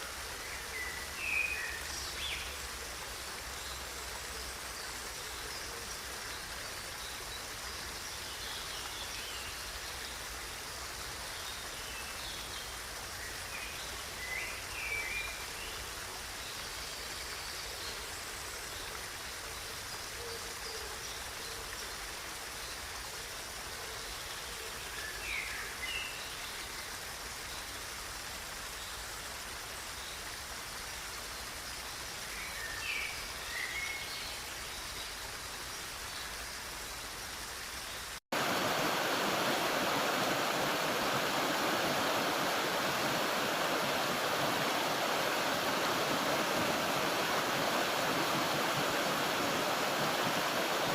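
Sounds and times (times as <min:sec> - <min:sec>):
stream rushing: 0:00.0 - 0:18.0, 0:31.9 - 0:50.9.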